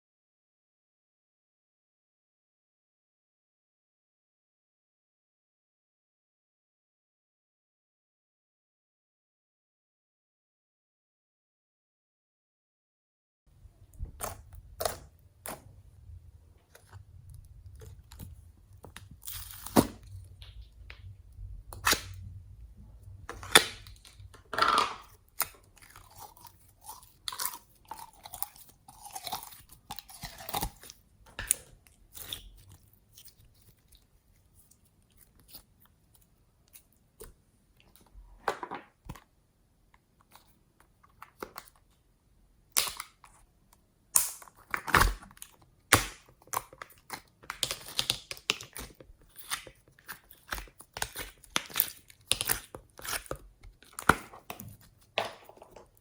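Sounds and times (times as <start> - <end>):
slime crunching and popping: 16.7 - 21.1, 21.7 - 22.3, 23.3 - 34.0, 44.2 - 56.0.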